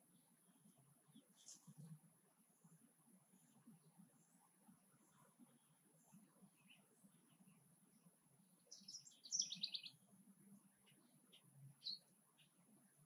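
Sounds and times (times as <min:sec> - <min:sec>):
bird chirping: 0:06.5 - 0:07.7, 0:08.4 - 0:10.0, 0:10.8 - 0:12.7.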